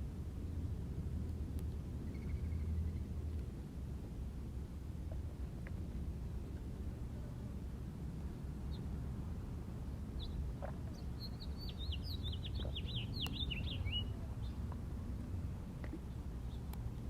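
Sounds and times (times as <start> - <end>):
steady low rumble: 0.0 - 17.0
songbird singing: 2.0 - 3.2, 8.6 - 9.0, 10.1 - 17.0.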